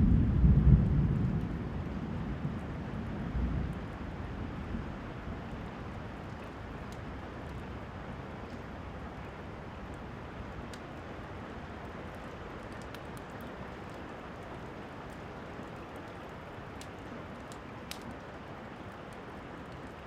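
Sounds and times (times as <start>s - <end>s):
thunder rumble: 0.0s - 5.7s
steady rain: 0.0s - 20.0s
faint ticks: 12.0s - 18.3s.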